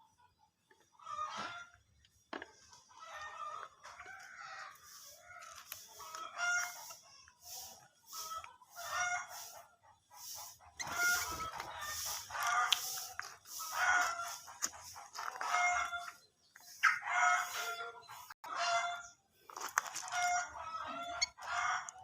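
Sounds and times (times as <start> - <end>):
birds calling: 0.7 - 19.2
quick hissing bursts: 10.2 - 14.4.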